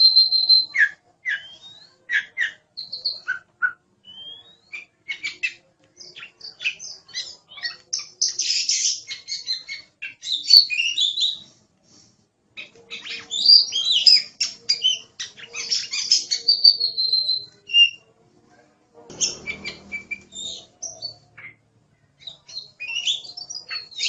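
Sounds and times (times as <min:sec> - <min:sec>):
bird singing chirps and whistles: 0:00.0 - 0:07.4, 0:13.0 - 0:18.0, 0:22.2 - 0:24.0
bird harsh rasping call: 0:19.1 - 0:21.6.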